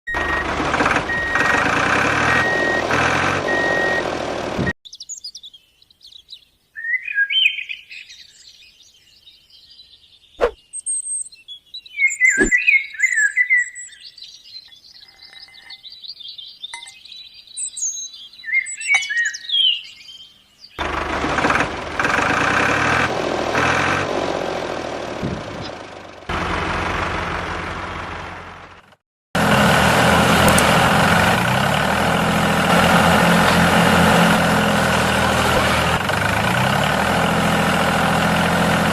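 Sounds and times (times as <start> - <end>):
engine running: 0.1 - 4.8, 20.8 - 38.9
birds chirping: 4.9 - 21.0.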